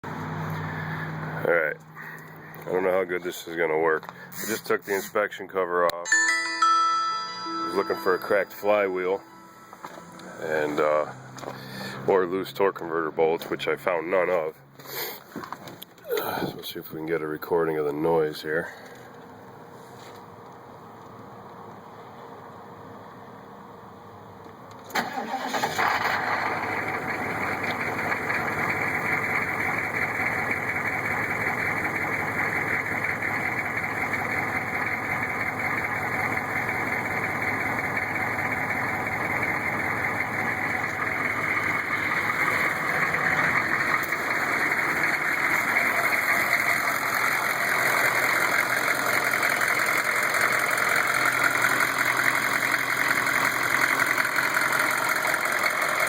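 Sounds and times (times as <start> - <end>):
diesel engine idling: 0.0 - 5.2, 7.9 - 13.8, 16.1 - 56.0
engine knocking: 25.8 - 56.0.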